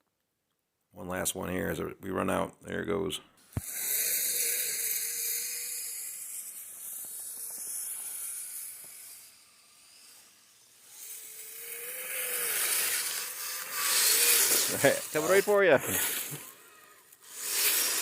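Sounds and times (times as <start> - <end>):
small ticks: 3.6 - 15.1
electric motor whine: 3.6 - 18.0.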